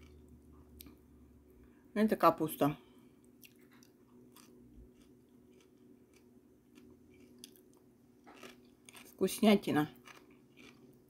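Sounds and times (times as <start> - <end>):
faint low hum: 0.0 - 11.0
faint chewing of salad: 3.0 - 9.3, 9.9 - 11.0.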